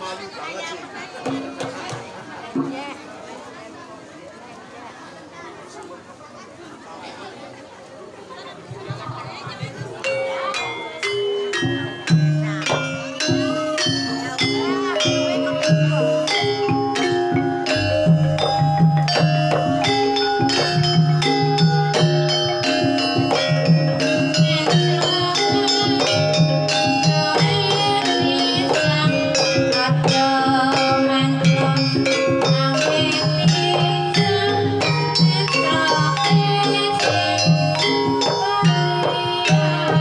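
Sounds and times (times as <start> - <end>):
quick drum pattern: 8.8 - 40.0
metallophones and gongs ringing: 10.0 - 40.0.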